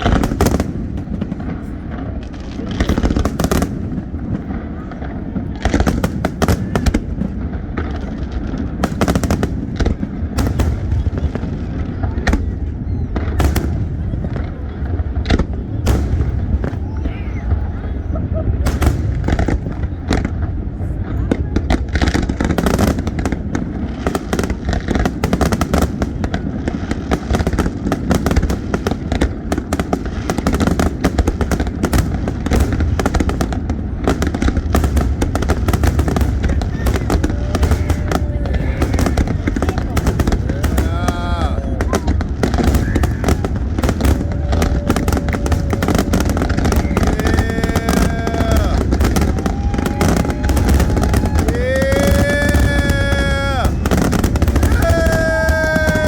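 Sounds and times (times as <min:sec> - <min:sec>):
fireworks sharp cracks: 0:00.0 - 0:56.0
low rumble of booms: 0:00.0 - 0:56.0.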